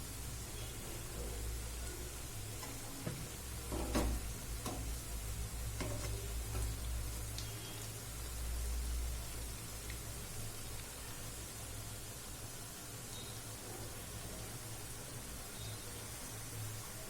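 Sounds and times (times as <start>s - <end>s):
fritters sizzling in hot oil: 0.0s - 17.0s
utensil clicking against a pan: 3.8s - 5.0s, 5.8s - 6.8s.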